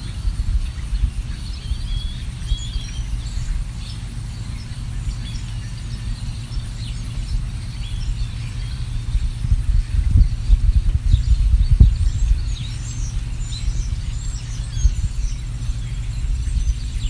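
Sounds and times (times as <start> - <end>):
constant low rumble: 0.0 - 17.0
songbirds chirping: 0.0 - 17.0.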